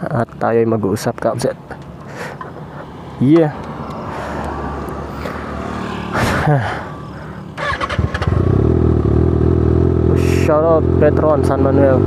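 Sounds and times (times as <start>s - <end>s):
motorcycle engine revving: 3.6s - 12.0s.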